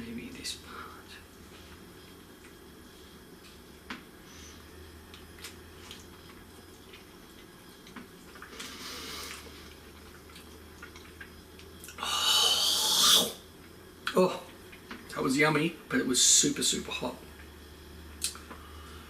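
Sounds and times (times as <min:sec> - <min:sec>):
wet chewing sounds: 0:05.1 - 0:12.0
breathy blowing of air: 0:12.0 - 0:13.4.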